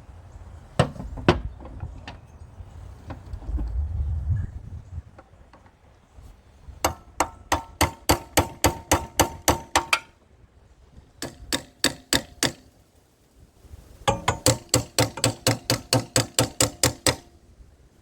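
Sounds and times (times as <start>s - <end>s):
metal-on-metal hammering: 6.8s - 10.2s, 11.2s - 12.7s, 14.1s - 17.4s.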